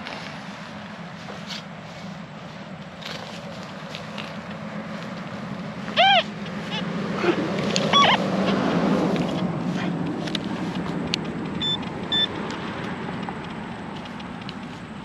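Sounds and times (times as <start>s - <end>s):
vehicle passing on road: 0.0s - 15.0s.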